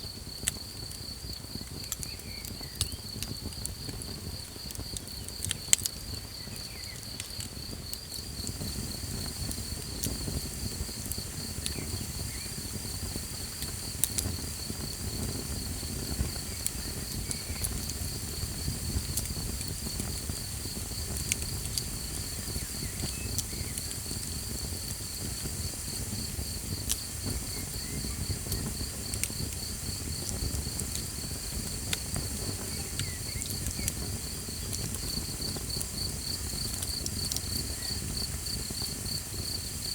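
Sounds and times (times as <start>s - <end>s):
campfire crackling and popping: 0.0s - 39.9s
crickets trilling: 0.0s - 39.9s.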